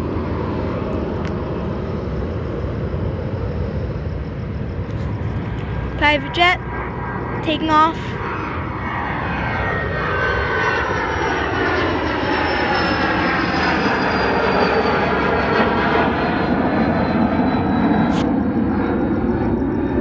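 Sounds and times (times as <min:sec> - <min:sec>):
jet engine rushing and whining: 0:00.0 - 0:20.0.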